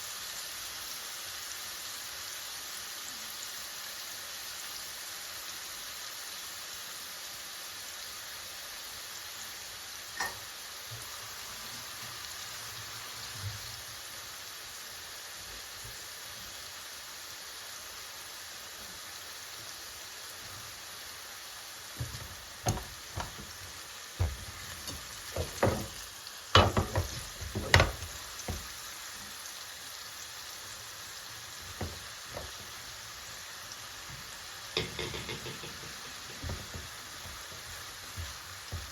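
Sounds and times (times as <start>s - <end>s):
food sizzling in a pan: 0.0s - 38.9s
utensils knocking and clattering: 22.0s - 23.6s, 24.2s - 26.0s, 26.6s - 28.7s, 34.8s - 38.9s.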